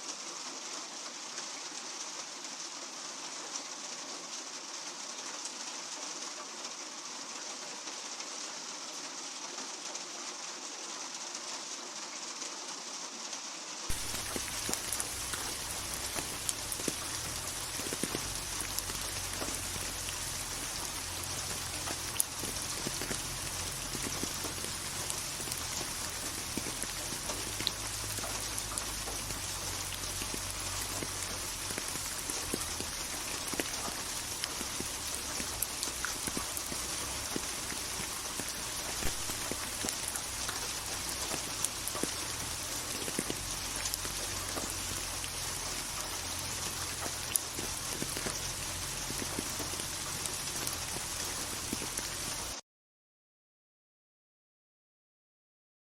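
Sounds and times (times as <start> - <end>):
steady rain falling: 0.0 - 52.6.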